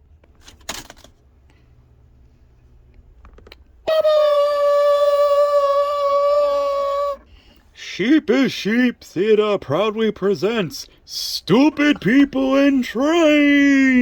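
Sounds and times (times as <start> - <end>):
person humming a long note: 3.9 - 7.3.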